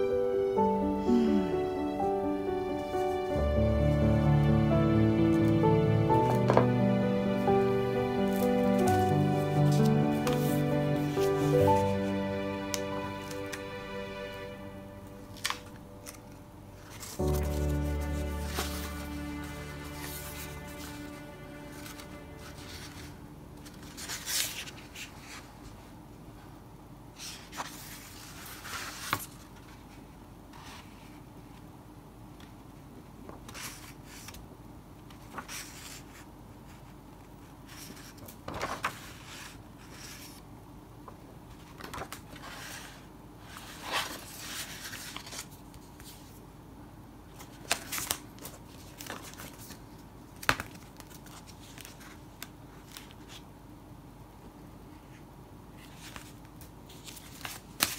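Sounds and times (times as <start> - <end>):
paper rustling and crinkling: 8.0 - 13.7, 15.2 - 25.9, 27.2 - 31.2, 33.3 - 34.4, 35.0 - 37.0, 37.6 - 40.4, 41.4 - 46.4, 47.3 - 53.4, 55.8 - 57.9.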